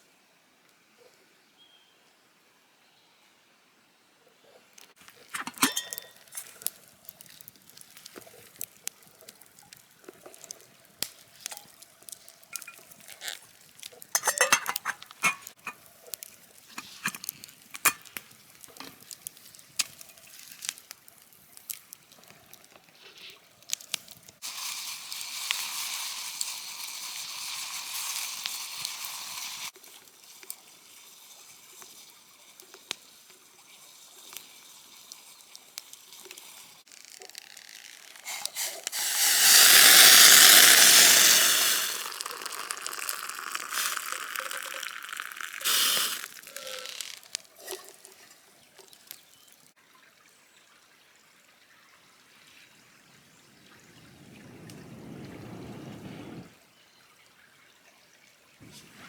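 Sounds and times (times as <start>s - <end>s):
fire crackling: 5.0s - 22.8s, 23.6s - 29.7s, 35.1s - 49.6s, 53.0s - 56.6s, 58.6s - 59.0s
food sizzling in a pan: 5.1s - 20.9s, 24.4s - 49.7s
utensils clicking and clinking: 5.2s - 6.7s, 14.2s - 15.8s, 16.7s - 18.1s.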